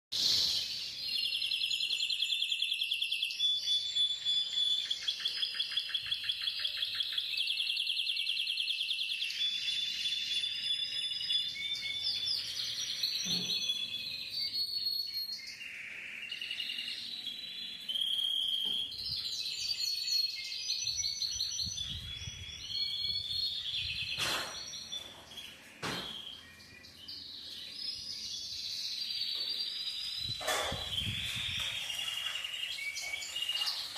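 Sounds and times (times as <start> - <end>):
canary singing trills: 0.2 - 33.9
sharp knocks: 24.2 - 24.7, 25.8 - 26.2.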